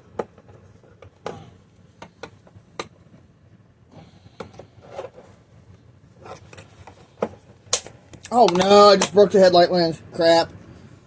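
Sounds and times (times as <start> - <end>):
sharp clicks and knocks of plastic parts: 0.1 - 3.3, 4.3 - 5.3, 6.3 - 9.3.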